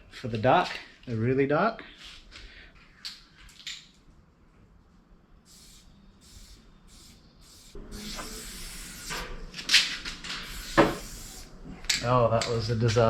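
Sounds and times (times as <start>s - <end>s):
spray paint can hissing: 5.5s - 9.3s, 10.4s - 11.5s.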